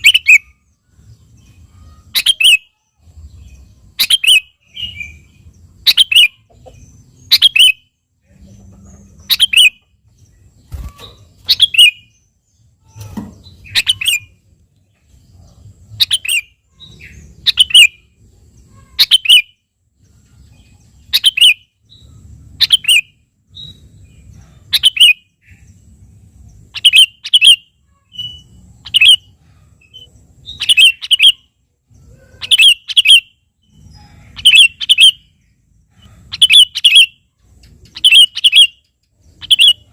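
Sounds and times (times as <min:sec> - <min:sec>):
bulbul calling: 0:01.9 - 0:02.8, 0:03.4 - 0:10.0, 0:10.7 - 0:12.2, 0:12.8 - 0:14.4, 0:15.5 - 0:18.0, 0:21.1 - 0:25.7, 0:26.7 - 0:31.5, 0:32.1 - 0:39.9.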